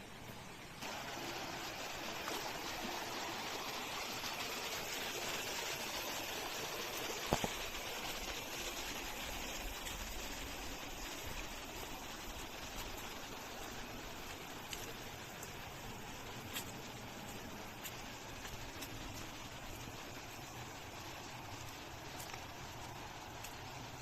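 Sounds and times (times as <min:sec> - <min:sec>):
stream of water running: 0:00.0 - 0:24.0.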